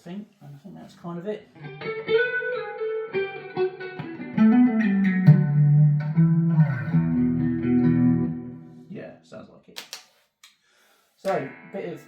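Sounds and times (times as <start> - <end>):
clean electric guitar notes: 1.7 - 8.7.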